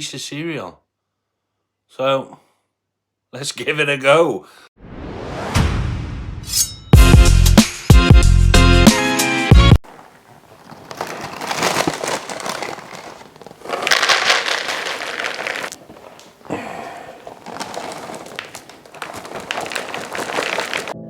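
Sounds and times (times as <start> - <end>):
music: 5.8 - 9.8
crinkling and crackling: 9.8 - 21.0.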